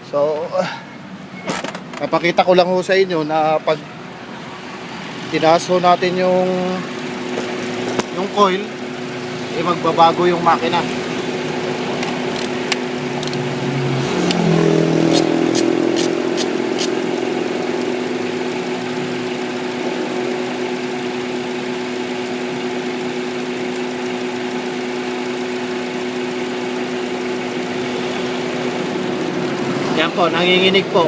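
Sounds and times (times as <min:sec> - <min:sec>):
car engine idling rough: 0:01.6 - 0:31.0.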